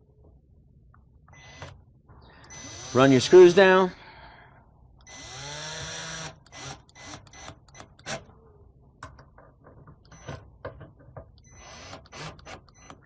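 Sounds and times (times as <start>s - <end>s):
power drill driving screw: 1.3s - 1.8s, 2.4s - 3.8s, 5.0s - 8.3s, 11.4s - 13.0s.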